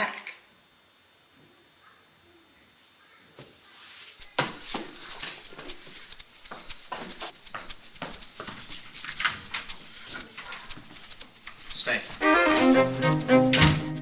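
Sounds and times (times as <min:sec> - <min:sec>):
rapid rattle of sharp clicks: 0:04.2 - 0:14.0.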